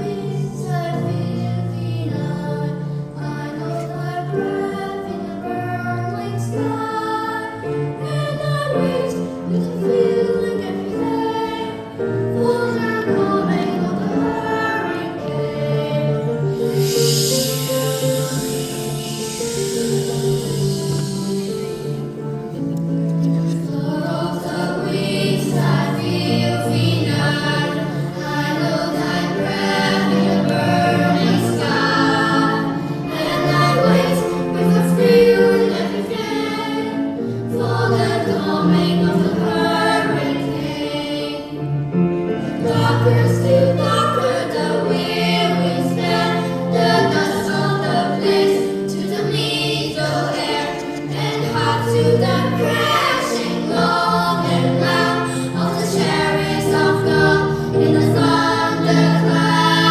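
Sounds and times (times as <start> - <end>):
children singing together: 0.0 - 59.9.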